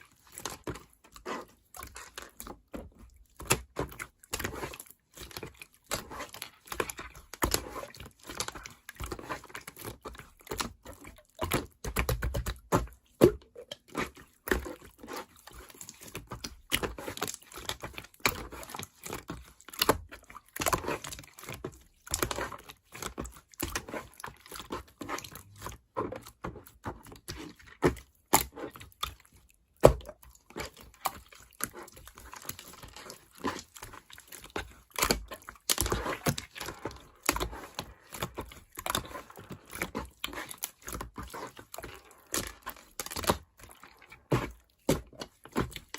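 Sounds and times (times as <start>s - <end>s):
hands squishing sticky slime: 0.0s - 45.9s.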